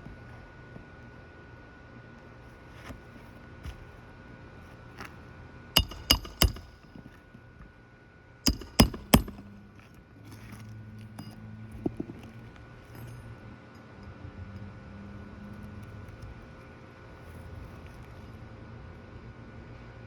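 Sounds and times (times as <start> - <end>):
hammer striking roofing nails: 5.8 - 7.0, 8.5 - 9.5.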